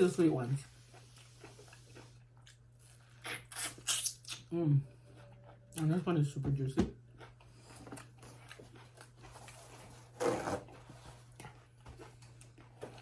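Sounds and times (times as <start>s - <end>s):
faint electrical hum: 0.0s - 13.0s
wet chewing of fruit: 0.5s - 4.5s, 7.1s - 9.9s, 10.6s - 13.0s
wet bite: 3.2s - 4.5s.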